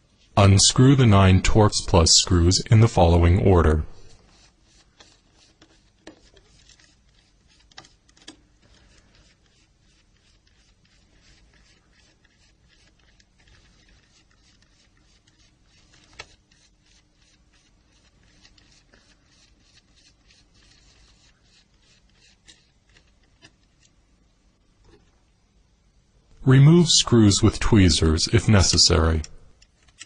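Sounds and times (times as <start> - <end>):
screwdriver clicks and scrapes: 29.6 - 30.0.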